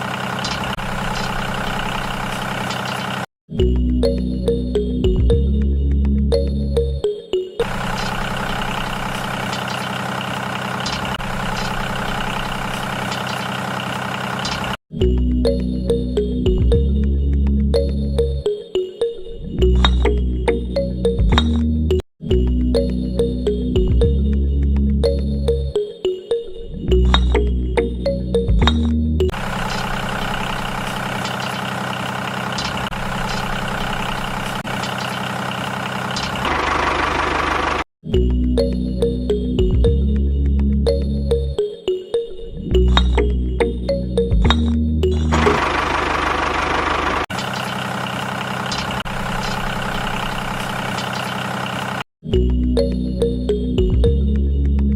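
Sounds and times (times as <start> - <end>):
tractor-like engine idling: 0.0 - 3.3, 7.6 - 14.8, 29.3 - 37.9, 45.3 - 52.0
music: 3.5 - 7.6, 14.9 - 29.3, 38.0 - 45.6, 52.2 - 54.9
motor humming: 7.6 - 14.8, 29.4 - 37.8, 45.3 - 52.0.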